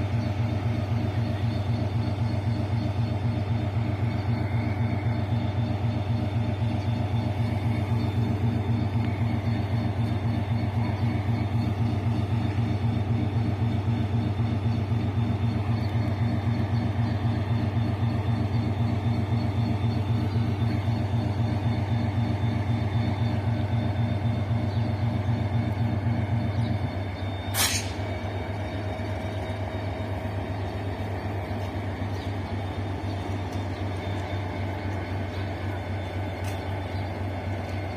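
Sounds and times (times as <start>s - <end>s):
locomotive engine throbbing drone: 0.0s - 37.9s
air brake hiss: 27.5s - 28.0s.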